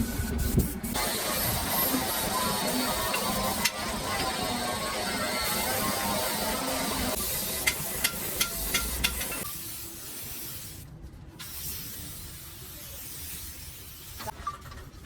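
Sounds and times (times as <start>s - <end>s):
compressed air spray hissing: 0.3s - 4.0s, 5.4s - 10.8s, 11.4s - 14.3s.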